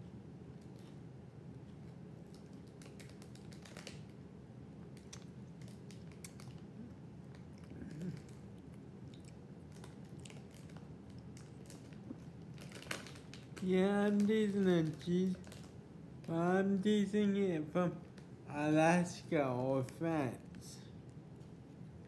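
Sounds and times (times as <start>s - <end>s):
steady low hum: 0.0s - 22.0s
person chewing crunchy snacks: 5.0s - 14.2s.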